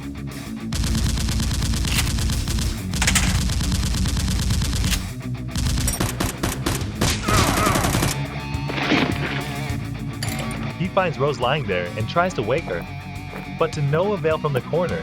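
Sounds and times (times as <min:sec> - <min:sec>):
heavy metal music: 0:00.0 - 0:15.0
rapid automatic gunfire: 0:00.7 - 0:08.2.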